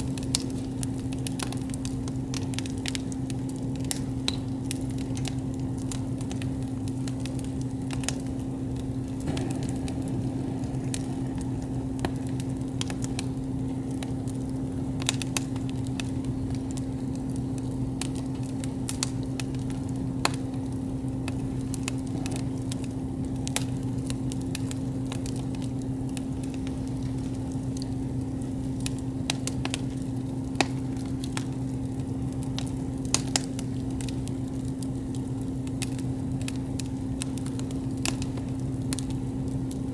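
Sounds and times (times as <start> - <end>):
campfire crackling and popping: 0.0 - 39.9
low hum: 8.3 - 14.5.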